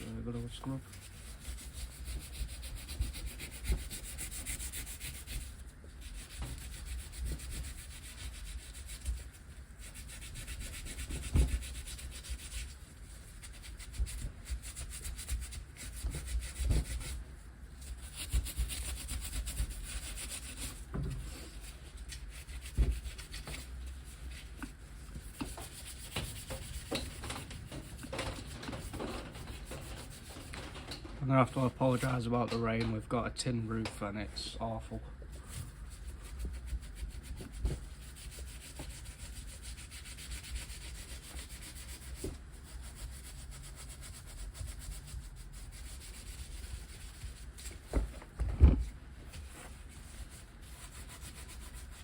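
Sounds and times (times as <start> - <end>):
stiff brush scrubbing metal: 0.0 - 32.5, 49.4 - 52.0.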